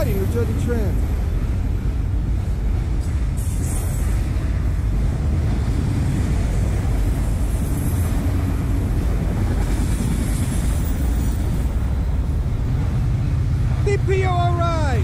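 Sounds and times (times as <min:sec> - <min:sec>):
freight train wheels rumbling: 0:00.0 - 0:15.0.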